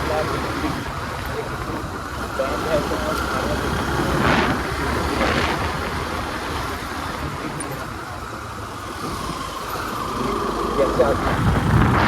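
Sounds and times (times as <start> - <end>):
road and wind rumble: 0.0 - 12.0.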